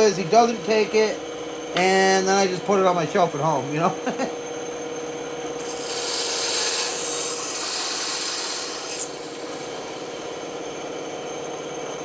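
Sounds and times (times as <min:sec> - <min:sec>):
band saw running: 0:00.0 - 0:12.0
saw blade cutting wood: 0:05.6 - 0:10.1.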